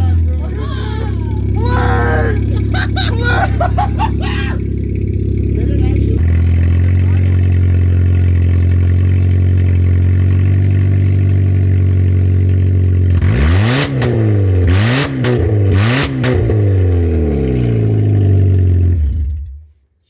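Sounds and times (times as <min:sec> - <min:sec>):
exhaust crackling bursts: 0:00.0 - 0:08.2
car engine idling and revving: 0:00.0 - 0:19.8.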